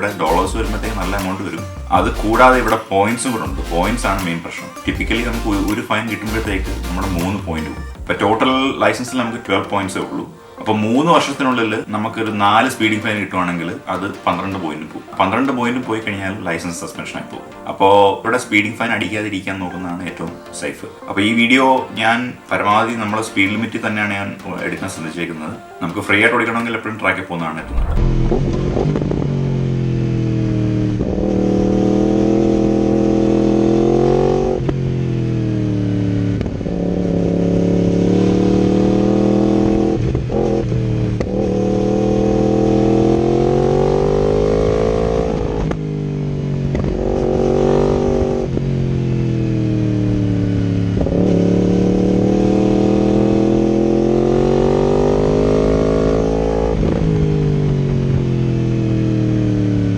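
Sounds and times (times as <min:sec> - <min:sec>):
motorcycle revving through gears: 0:27.6 - 0:59.9.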